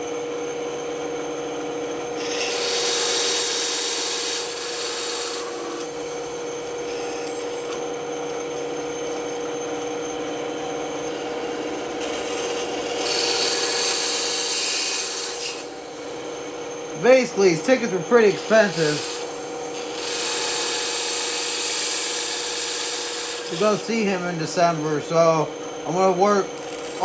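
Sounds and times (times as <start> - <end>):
band saw humming: 0.0 - 27.0
saw blade cutting wood: 2.2 - 10.1, 10.9 - 16.1, 16.9 - 27.0.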